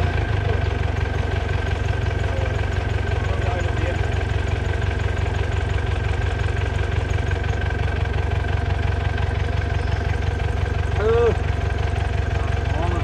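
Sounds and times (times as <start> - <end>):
diesel engine throbbing: 0.0 - 13.0.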